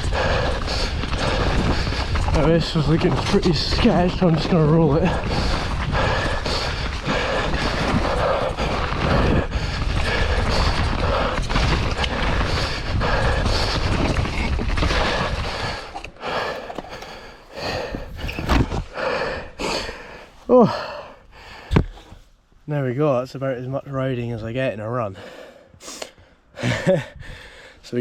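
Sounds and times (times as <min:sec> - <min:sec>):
bike knocks and rattles: 0:00.0 - 0:17.2
mountain bike rolling on trail: 0:00.0 - 0:22.1.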